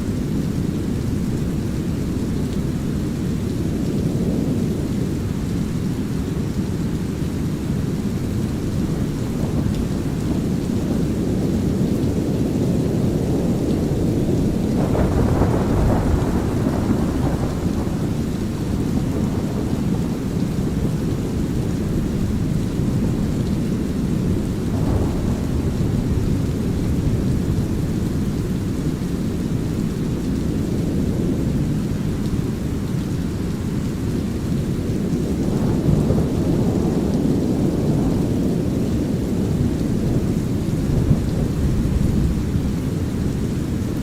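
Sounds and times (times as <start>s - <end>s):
light rain: 0.0s - 44.0s
thunder rumbling: 7.9s - 32.8s, 34.5s - 44.0s.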